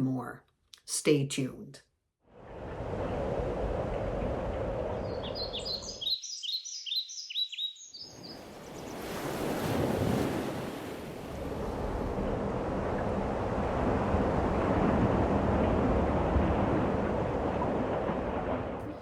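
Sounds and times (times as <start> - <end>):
ocean surf rushing: 2.4 - 6.0, 8.1 - 19.0
songbird chirping: 4.2 - 9.2.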